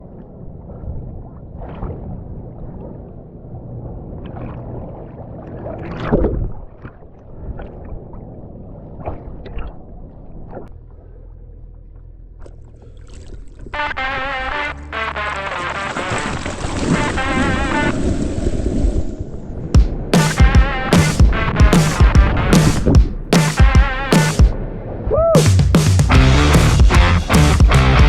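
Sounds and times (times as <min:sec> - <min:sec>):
water splashes: 0:00.0 - 0:23.1
motorboat engine rumble: 0:00.0 - 0:25.3
rushing water: 0:12.6 - 0:24.4
music: 0:13.8 - 0:17.9, 0:19.8 - 0:24.6, 0:25.4 - 0:28.0
wind noise: 0:15.8 - 0:23.2.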